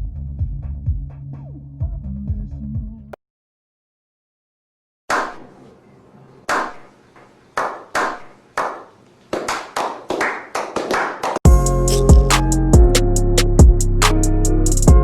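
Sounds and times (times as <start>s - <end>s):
sharp claps with ringing tails: 7.6s - 11.4s.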